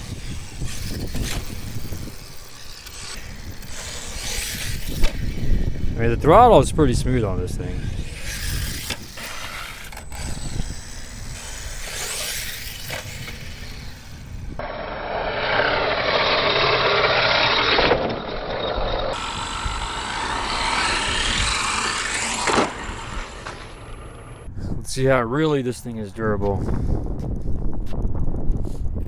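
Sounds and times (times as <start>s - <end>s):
rc truck tyres scrabbling: 0.0s - 24.5s.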